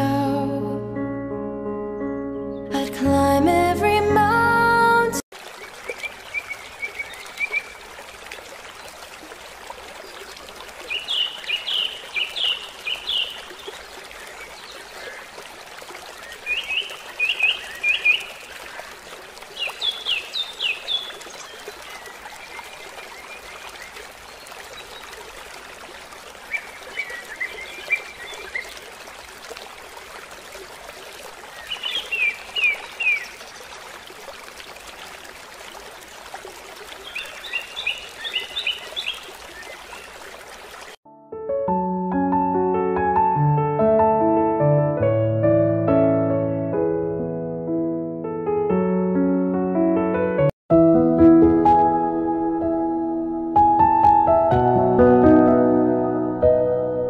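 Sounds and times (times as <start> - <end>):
songbird singing: 5.6 - 7.8, 10.1 - 15.3, 16.2 - 25.2, 26.4 - 28.9, 31.5 - 33.6, 36.9 - 40.3.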